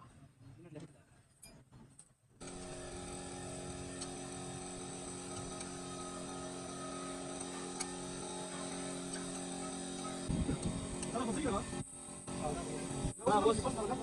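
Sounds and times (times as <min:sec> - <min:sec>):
machine humming: 0:02.4 - 0:14.0.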